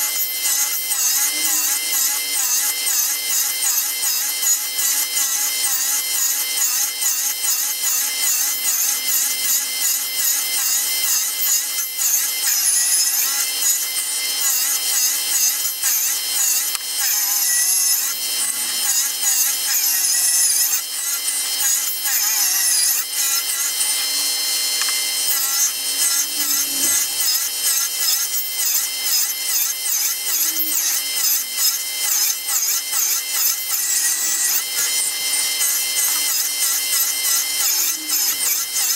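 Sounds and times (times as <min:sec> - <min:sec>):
saw rasping through wood: 0:00.0 - 0:38.9
table saw blade whine: 0:00.0 - 0:38.9.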